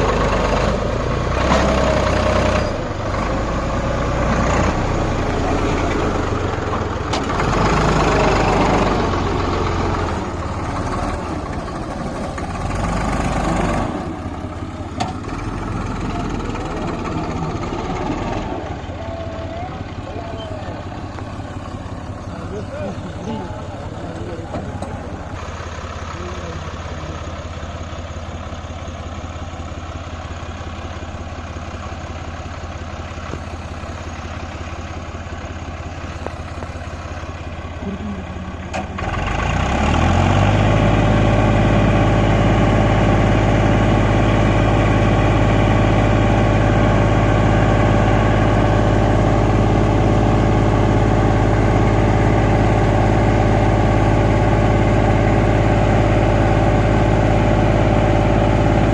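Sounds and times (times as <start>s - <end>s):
tractor diesel engine running: 0.0s - 58.9s.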